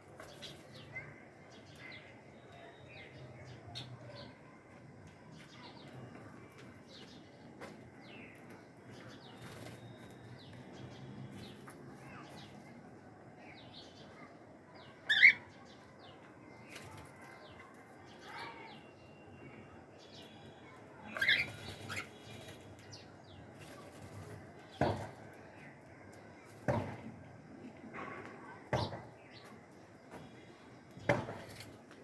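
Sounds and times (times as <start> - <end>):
cockatiels chirping and calling: 15.1 - 15.4, 21.1 - 22.3.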